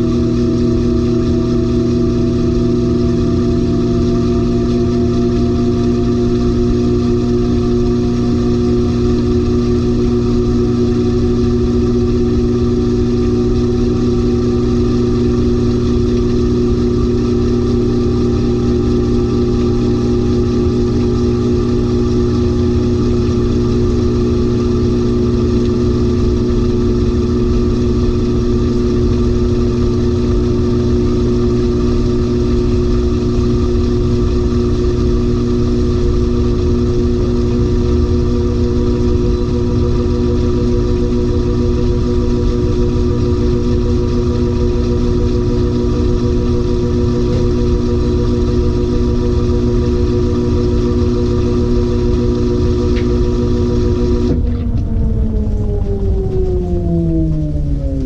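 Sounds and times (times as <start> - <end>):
washing machine motor hum: 0.0 - 58.0
faint rising tone: 54.3 - 58.0.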